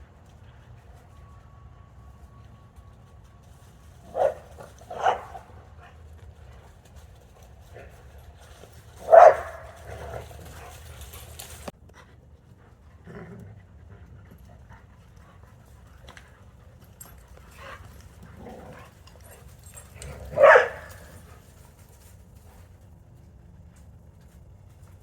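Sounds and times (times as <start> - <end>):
dog barking: 4.1 - 5.6, 9.0 - 10.2, 20.2 - 21.1.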